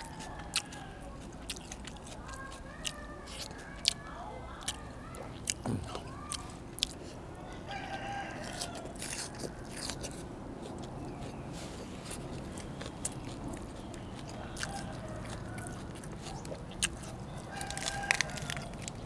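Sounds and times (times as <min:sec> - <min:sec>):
rooster crowing: 0:00.0 - 0:01.2, 0:07.4 - 0:09.9, 0:14.3 - 0:16.1, 0:17.3 - 0:18.9
chewing and crunching food: 0:00.0 - 0:19.0.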